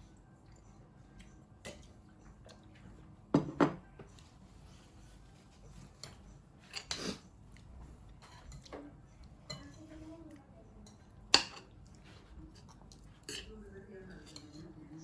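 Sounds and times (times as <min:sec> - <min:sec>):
cutlery clinking against plates: 0:05.7 - 0:07.2, 0:08.1 - 0:10.1, 0:10.8 - 0:15.0.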